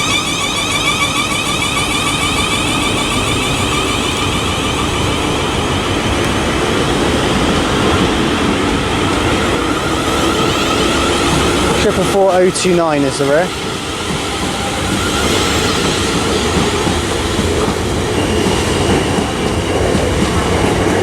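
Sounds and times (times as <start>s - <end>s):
electric train motor whine: 0.0s - 12.2s
train rolling noise: 0.0s - 21.0s.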